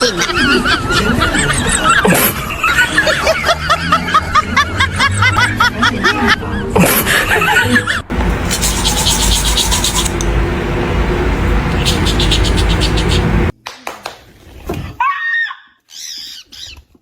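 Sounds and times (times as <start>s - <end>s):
parrot laughing: 7.0s - 13.5s.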